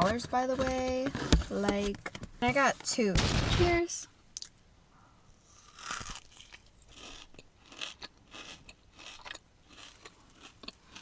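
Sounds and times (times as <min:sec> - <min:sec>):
crunchy chewing: 0:05.4 - 0:11.0.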